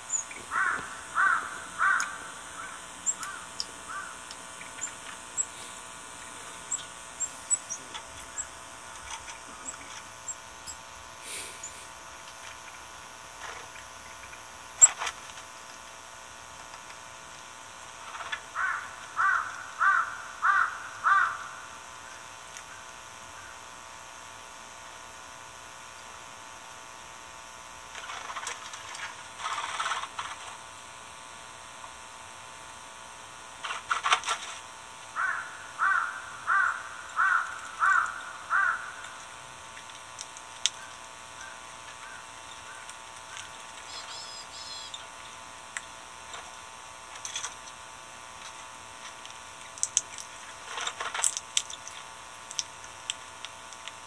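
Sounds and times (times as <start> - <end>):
bird calling short repeated notes: 43.9 - 45.0.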